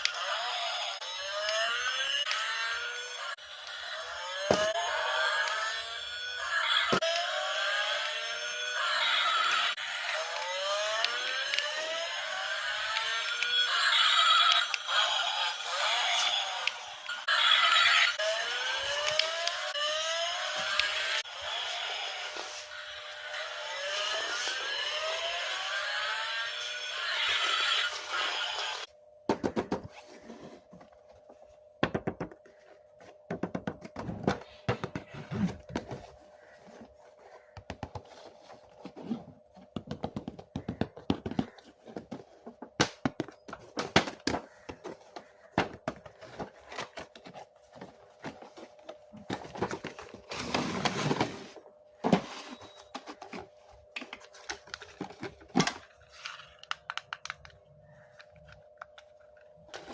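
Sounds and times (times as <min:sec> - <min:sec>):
plastic toys clicking and knocking: 0:54.0 - 0:59.5.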